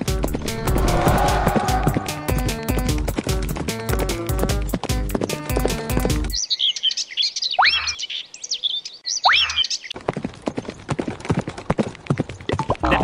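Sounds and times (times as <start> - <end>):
music: 0.0 - 6.4
rising whistles: 0.3 - 2.9
birds chirping and twittering: 6.1 - 10.0.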